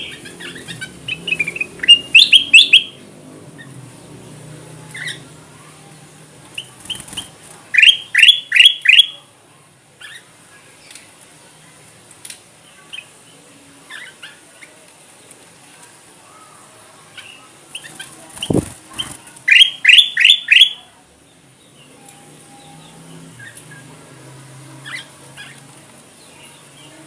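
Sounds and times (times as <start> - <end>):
bulbul calling: 0.0 - 3.0, 17.8 - 20.8.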